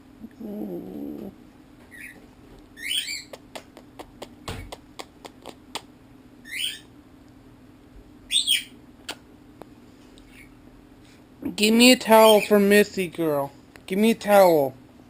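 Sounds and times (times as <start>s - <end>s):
faint low hum: 0.0s - 15.0s
bird chirping squeakily: 1.9s - 2.2s, 2.8s - 3.3s, 6.4s - 6.9s, 8.3s - 8.8s.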